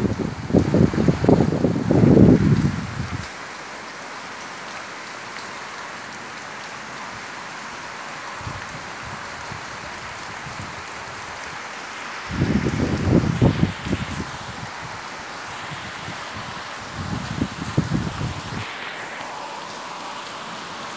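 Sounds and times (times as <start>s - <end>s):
steady rain falling: 0.0s - 20.9s.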